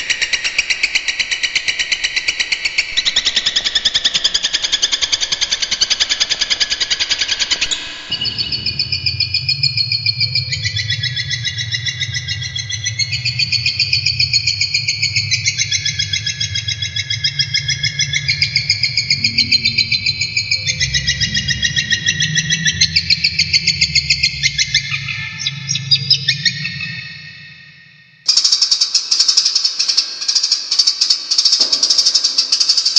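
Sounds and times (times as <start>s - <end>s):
steady low hum: 7.6s - 28.2s
shrike singing rattling trills: 7.6s - 32.9s.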